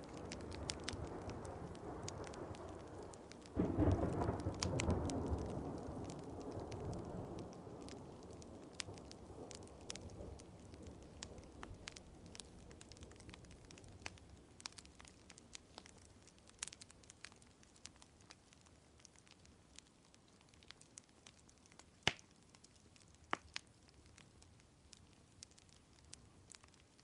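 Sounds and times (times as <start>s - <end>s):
faint rain: 0.0s - 27.0s
wood fire crackling: 0.0s - 27.0s
low thunder rumble: 0.2s - 13.8s.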